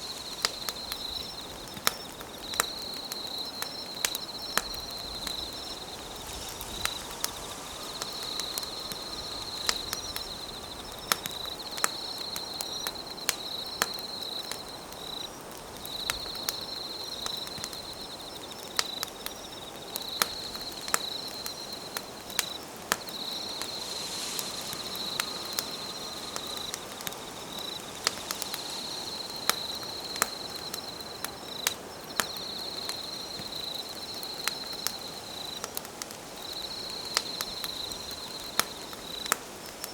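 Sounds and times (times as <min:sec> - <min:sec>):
campfire crackling and popping: 0:00.0 - 0:39.9
insect trilling: 0:19.4 - 0:35.6.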